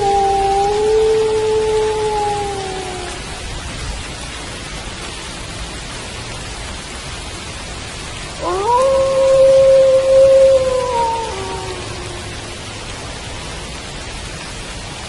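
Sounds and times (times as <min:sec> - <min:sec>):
wolf howling: 0:00.0 - 0:03.3, 0:08.4 - 0:12.6
steady rain: 0:00.0 - 0:15.0.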